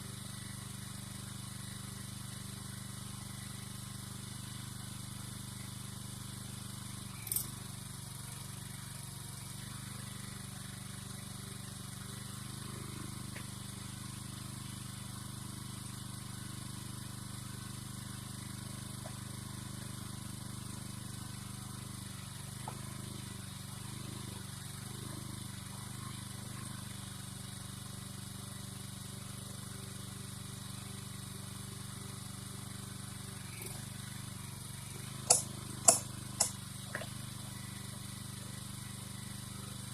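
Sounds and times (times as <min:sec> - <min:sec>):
engine running steadily: 0:00.0 - 0:39.9
sharp click: 0:35.3 - 0:37.1.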